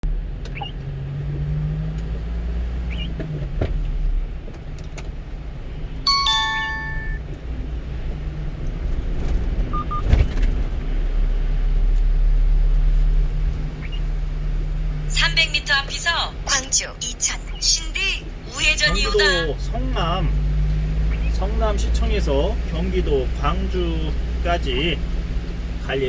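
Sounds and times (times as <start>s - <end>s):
truck engine and road hum: 0.0s - 26.0s
electronic chime: 6.1s - 7.2s
short beeps: 6.1s - 7.2s.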